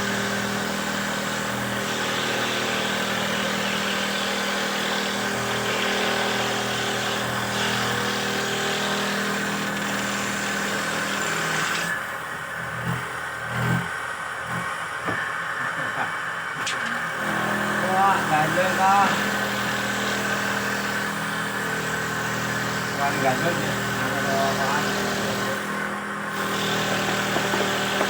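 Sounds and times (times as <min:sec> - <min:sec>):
machine motor running: 0:00.0 - 0:28.0
hissing cutting noise: 0:14.6 - 0:28.0.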